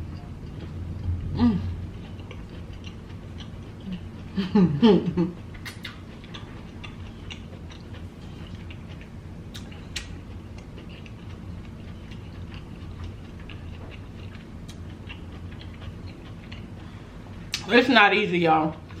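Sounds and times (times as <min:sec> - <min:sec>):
steady low hum: 0:00.0 - 0:19.0
wet chewing mouth clicks: 0:05.5 - 0:16.9.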